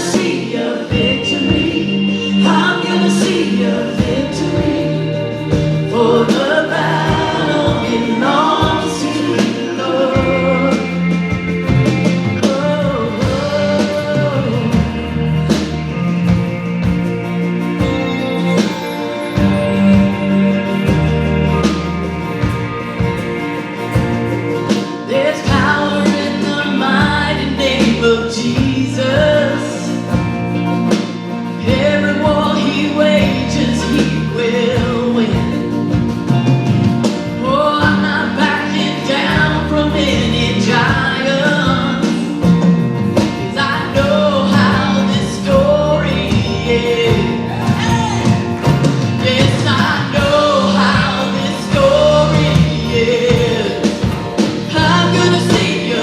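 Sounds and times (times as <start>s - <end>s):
worship band playing with singing: 0.0s - 56.0s.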